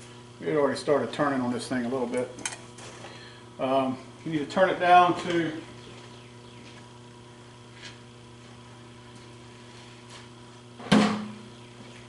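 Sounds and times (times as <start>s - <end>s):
electrical hum: 0.0s - 12.0s
sharp knock: 10.9s - 11.3s.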